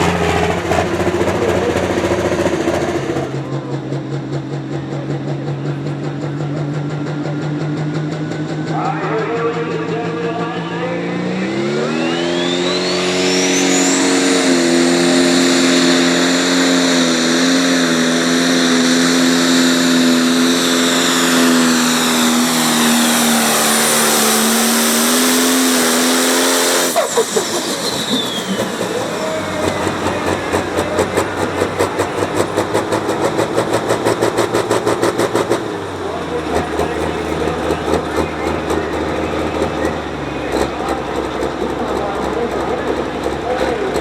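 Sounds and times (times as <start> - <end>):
tractor diesel engine revving: 0.0 - 44.0
turbo whine: 8.7 - 41.2.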